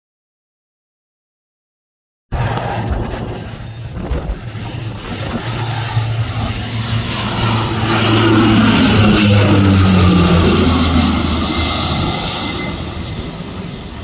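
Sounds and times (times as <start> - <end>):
airplane flying past: 2.4 - 14.0.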